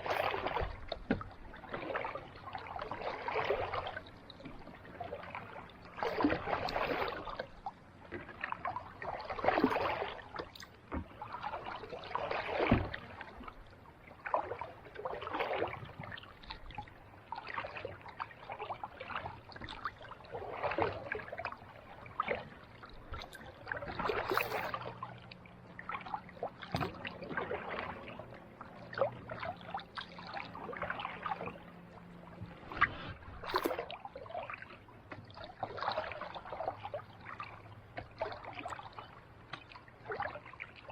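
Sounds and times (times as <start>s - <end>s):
kayak paddle splashing: 0.0s - 40.9s.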